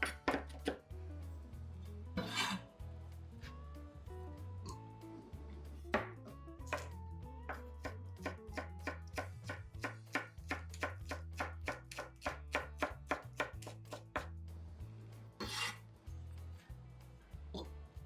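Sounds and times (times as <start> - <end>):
knife chopping on cutting board: 0.0 - 0.8, 6.0 - 14.3
soft background music: 0.0 - 18.0.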